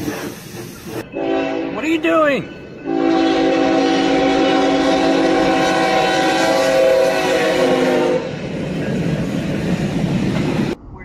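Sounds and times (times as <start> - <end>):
multi-note horn blast: 2.9 - 8.3.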